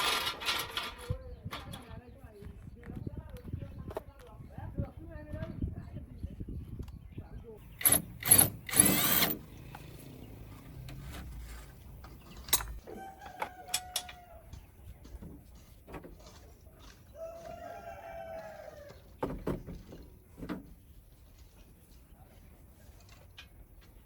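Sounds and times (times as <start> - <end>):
rooster crowing: 12.8 - 14.5, 17.1 - 19.0.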